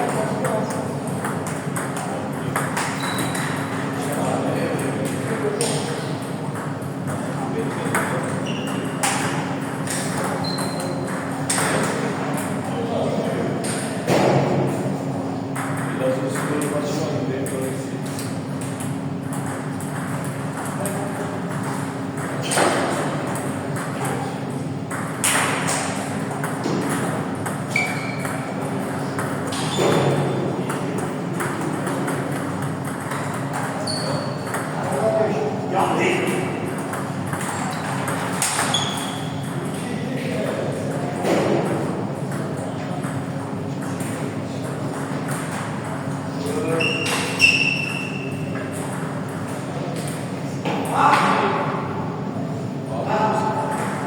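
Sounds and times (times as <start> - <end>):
table tennis balls clicking: 18.6 - 24.3, 30.7 - 35.0, 36.2 - 39.8.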